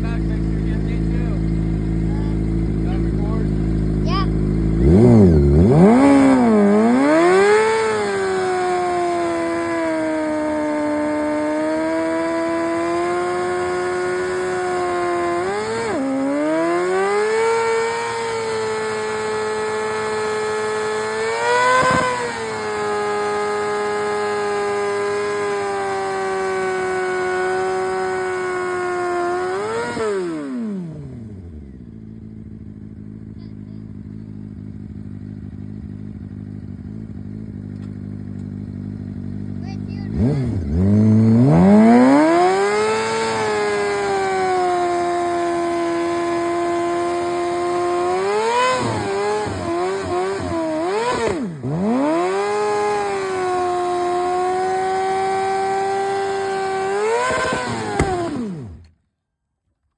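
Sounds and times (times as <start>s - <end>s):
motorcycle engine revving high: 0.0s - 59.0s
sharp crack: 57.4s - 58.9s.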